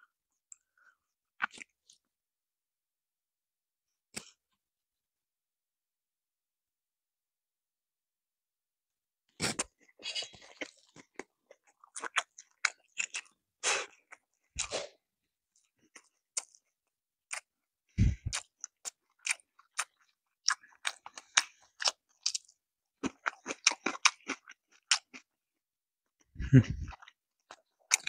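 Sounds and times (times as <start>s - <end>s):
crunchy chewing of food: 9.4s - 25.4s, 26.4s - 28.0s.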